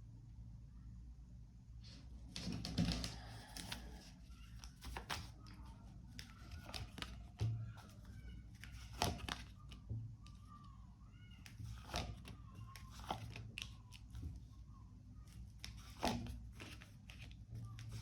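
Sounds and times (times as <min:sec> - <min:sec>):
cards being shuffled: 0:02.4 - 0:10.4, 0:11.4 - 0:14.4, 0:15.3 - 0:18.0.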